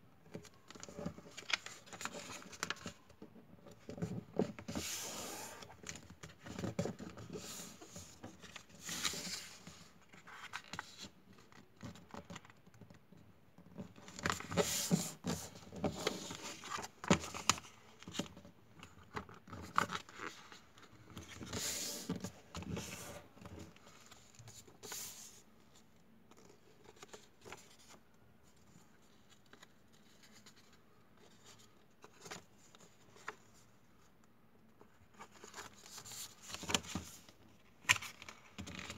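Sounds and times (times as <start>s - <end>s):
paper rustling and crinkling: 0.3s - 12.9s, 34.8s - 38.9s.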